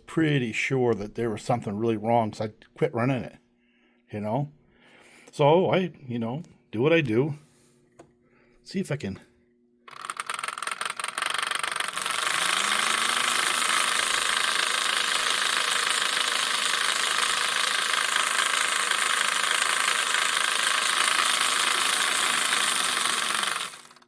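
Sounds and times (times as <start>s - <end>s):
toy locomotive buzzing rattle: 9.9s - 24.0s
toy locomotive motor hum: 9.9s - 24.0s.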